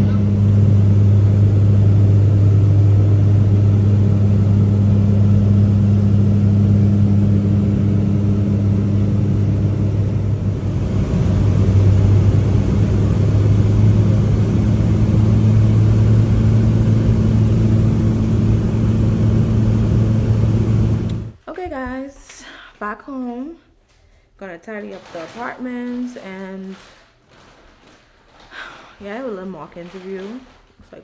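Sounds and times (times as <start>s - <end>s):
boat engine humming: 0.0s - 21.4s.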